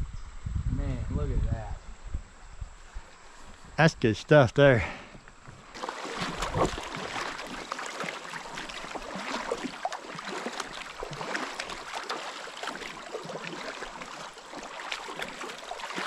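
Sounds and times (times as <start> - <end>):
creek water splashing and gurgling: 5.7 - 16.0.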